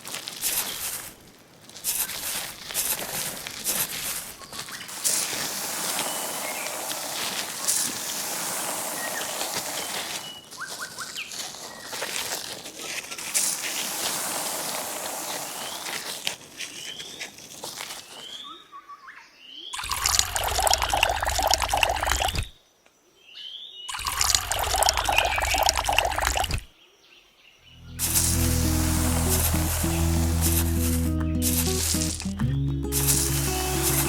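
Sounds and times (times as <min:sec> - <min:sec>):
water pouring and trickling: 0:03.6 - 0:10.7, 0:13.1 - 0:16.3, 0:19.8 - 0:22.4, 0:23.9 - 0:26.7, 0:28.0 - 0:34.0.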